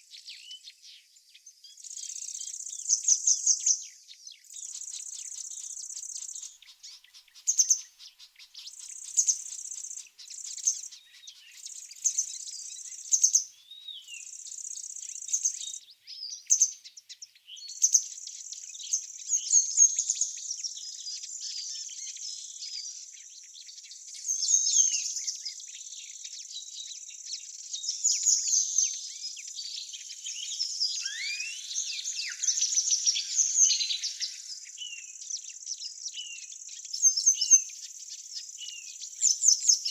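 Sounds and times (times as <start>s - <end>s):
songbirds chirping: 0.0s - 39.9s
falling whistled bird calls: 28.3s - 37.8s.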